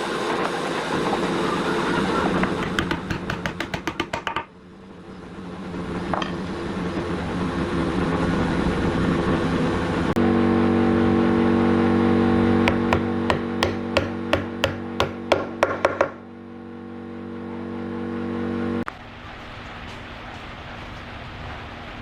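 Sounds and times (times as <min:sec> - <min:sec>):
woodworking machinery humming: 0:00.0 - 0:18.9
regular sharp knocks: 0:02.5 - 0:04.5, 0:12.7 - 0:16.2.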